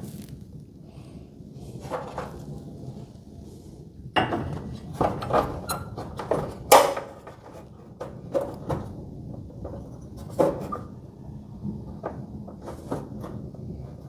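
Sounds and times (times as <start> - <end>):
tools knocking and clanking: 4.2 - 8.9.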